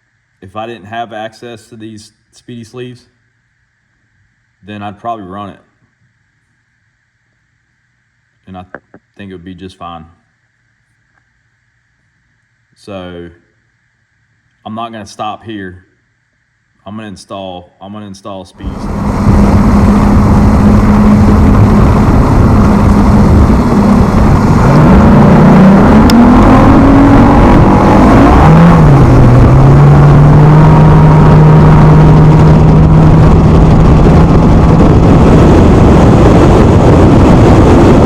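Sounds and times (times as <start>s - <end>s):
engine running: 18.6s - 38.0s
wind noise: 18.6s - 38.0s.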